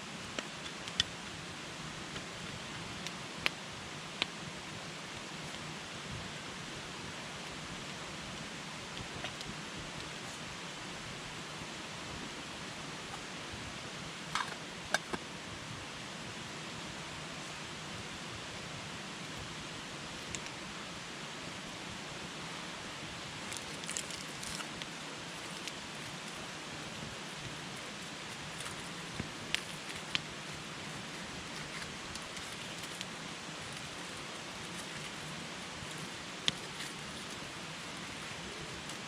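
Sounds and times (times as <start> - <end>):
campfire hissing: 0.0 - 39.0
campfire crackles and pops: 0.2 - 4.4, 8.6 - 10.5, 20.1 - 20.6, 23.2 - 39.0.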